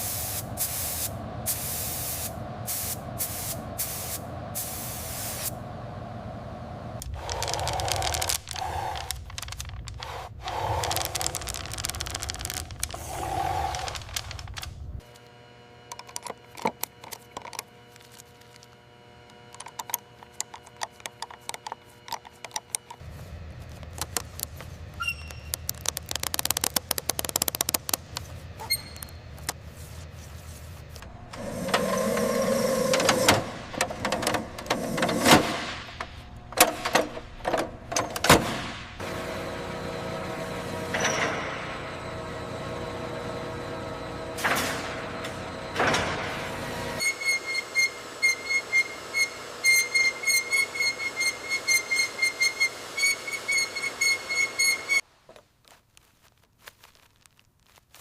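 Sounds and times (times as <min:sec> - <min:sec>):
tool clicks and knocks: 0:15.9 - 0:17.7, 0:19.4 - 0:23.0, 0:25.3 - 0:28.2.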